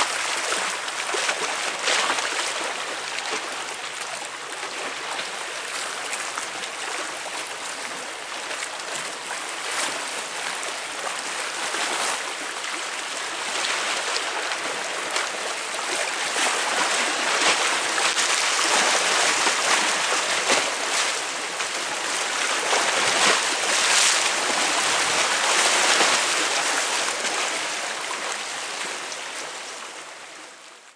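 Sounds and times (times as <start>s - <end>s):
sea waves splashing against concrete: 14.0s - 28.2s.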